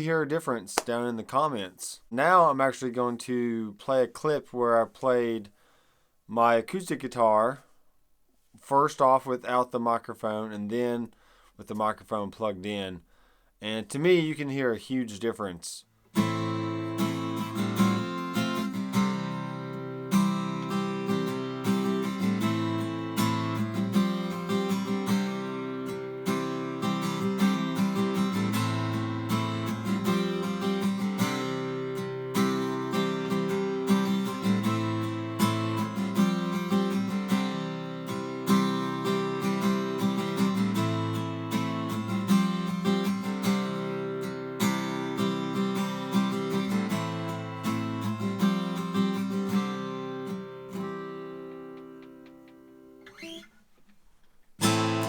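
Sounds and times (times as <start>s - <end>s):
acoustic guitar strumming chords: 16.1s - 53.5s, 54.6s - 55.0s.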